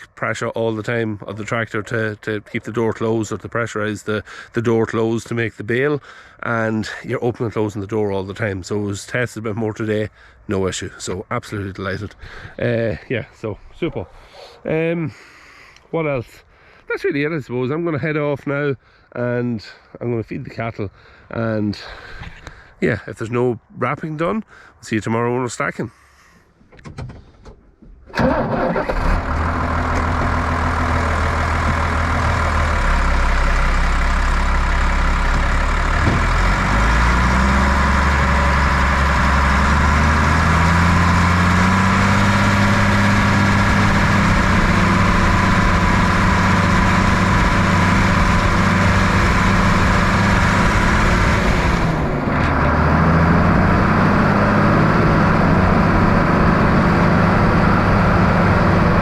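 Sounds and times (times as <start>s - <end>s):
tractor diesel engine running: 0.0s - 9.2s, 28.1s - 59.0s.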